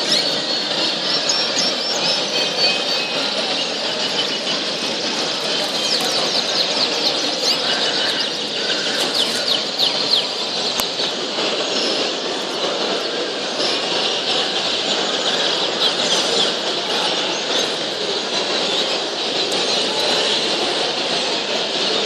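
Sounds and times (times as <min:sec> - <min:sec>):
canaries chirping and singing: 0:00.0 - 0:13.0.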